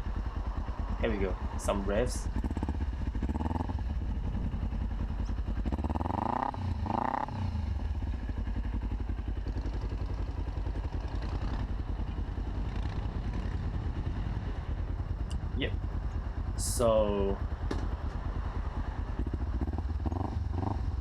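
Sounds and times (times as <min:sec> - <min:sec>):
motorcycle engine idling: 0:00.0 - 0:21.0
motorcycle engine revving: 0:00.0 - 0:21.0.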